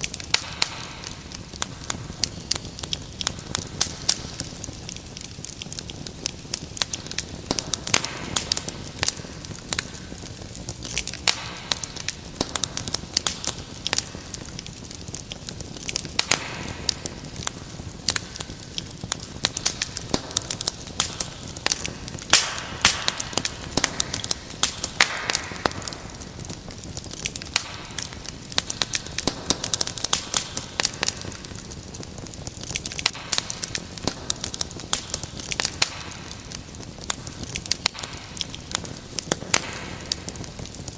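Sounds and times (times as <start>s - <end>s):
fireplace fire crackling: 0.0s - 40.9s
soft hiss of fire: 0.0s - 40.9s.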